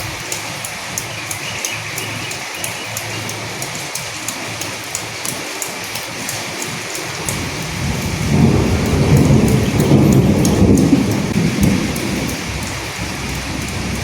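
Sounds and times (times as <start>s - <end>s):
rain falling: 0.0s - 14.0s
low rumble of thunder: 7.2s - 14.0s.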